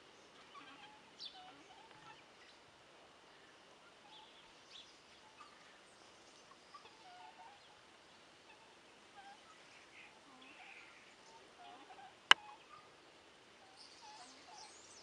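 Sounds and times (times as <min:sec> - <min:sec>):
low steady hiss: 0:00.0 - 0:15.0.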